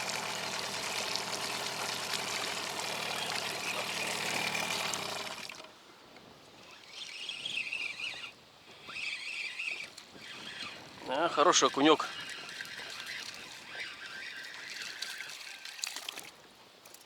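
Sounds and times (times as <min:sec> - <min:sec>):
water rushing past hull: 0:00.0 - 0:05.8, 0:09.7 - 0:16.4
outboard motor humming: 0:00.0 - 0:16.3.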